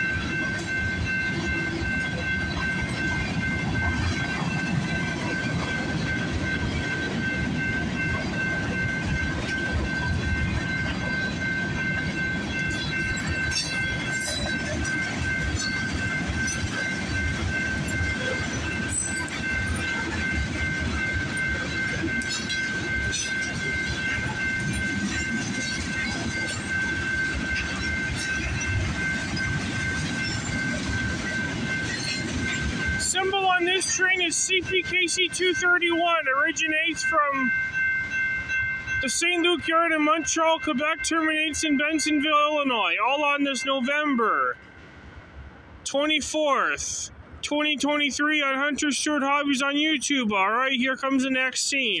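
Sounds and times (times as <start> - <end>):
wheels clacking over rail joints: 0.0 - 35.6
train wheels rumbling on rail: 0.0 - 43.2
steady high-pitched tone: 0.0 - 44.8.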